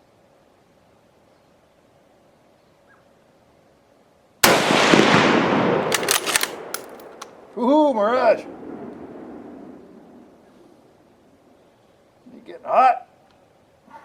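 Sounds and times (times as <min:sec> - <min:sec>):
sharp rifle clicks: 0:04.4 - 0:07.6
rifle shot echoing: 0:04.4 - 0:10.5.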